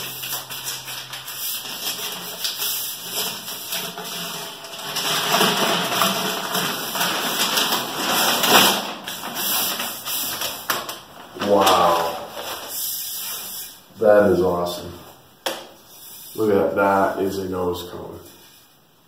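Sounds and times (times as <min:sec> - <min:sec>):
packing material rustling: 0:00.0 - 0:13.8.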